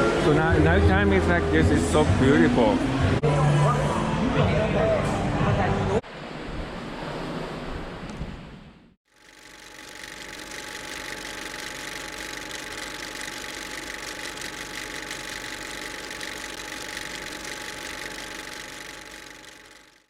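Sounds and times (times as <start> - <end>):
mechanical hum: 9.1 - 20.0.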